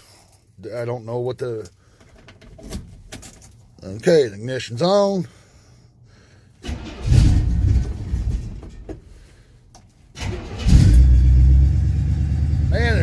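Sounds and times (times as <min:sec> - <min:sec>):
truck engine cranking: 0:06.6 - 0:09.2, 0:10.1 - 0:12.7.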